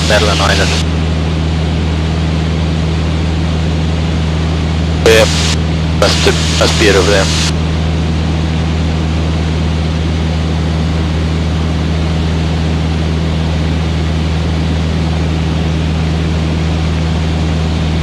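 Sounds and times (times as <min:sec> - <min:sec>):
light aircraft engine droning: 0:00.0 - 0:18.0
steady hiss: 0:05.1 - 0:07.5.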